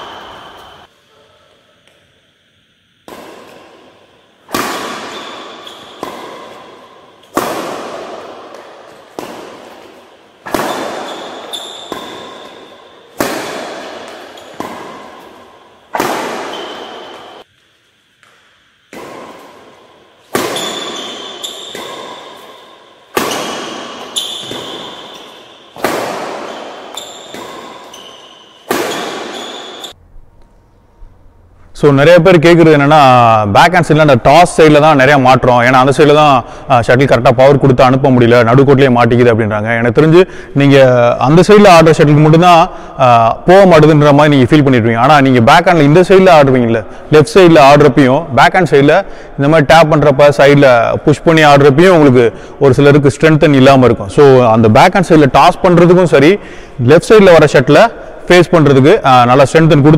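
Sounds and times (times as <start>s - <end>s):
racket hitting shuttlecock: 0.0s - 0.9s, 3.0s - 30.5s.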